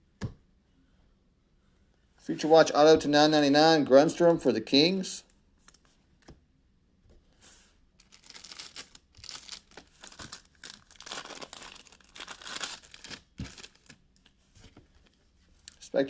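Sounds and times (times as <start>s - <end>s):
foil wrappers crinkling and tearing: 8.0s - 14.0s.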